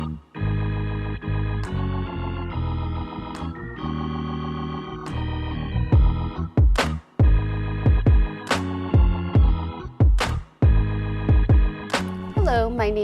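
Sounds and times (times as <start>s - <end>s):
organ-like keyboard chords: 0.0s - 13.0s
drum hits: 6.0s - 13.0s.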